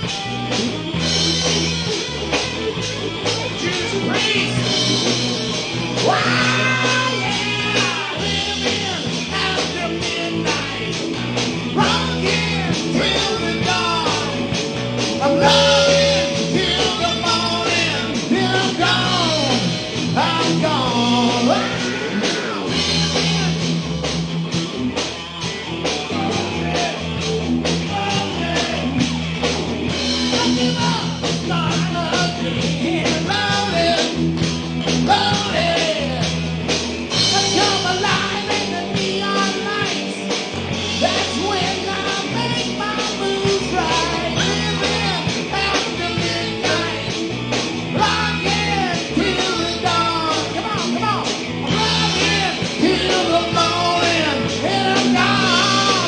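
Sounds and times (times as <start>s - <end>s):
bending lead guitar melody: 0.0s - 56.0s
live rock band playing: 0.0s - 56.0s.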